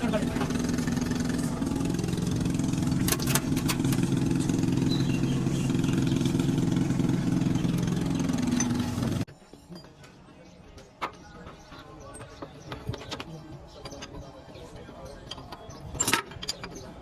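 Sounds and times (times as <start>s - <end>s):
engine idling: 0.0s - 9.3s
sharp metallic clicks: 0.4s - 6.6s.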